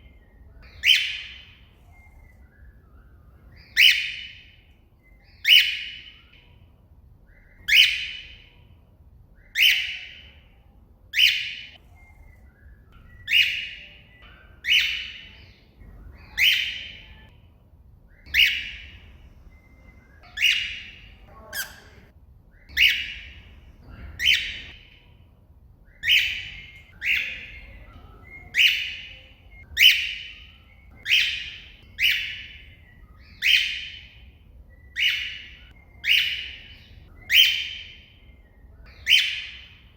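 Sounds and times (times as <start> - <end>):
cockatiel shrill calls: 0.7 - 1.5, 3.6 - 4.4, 7.4 - 8.4, 13.3 - 14.0, 16.2 - 17.3, 18.2 - 19.0, 20.2 - 22.0, 22.6 - 23.4, 24.2 - 24.8, 29.8 - 32.7, 33.3 - 34.2, 35.0 - 38.0, 38.9 - 39.8.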